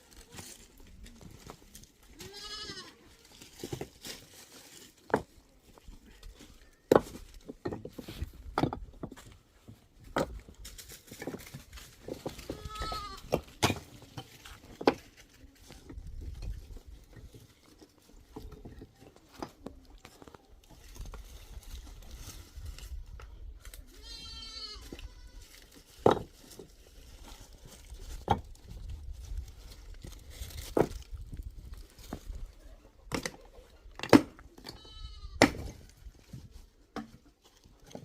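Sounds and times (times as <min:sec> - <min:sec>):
goat bleating: 0:02.2 - 0:03.1, 0:12.5 - 0:13.2, 0:24.0 - 0:25.4, 0:34.8 - 0:35.4.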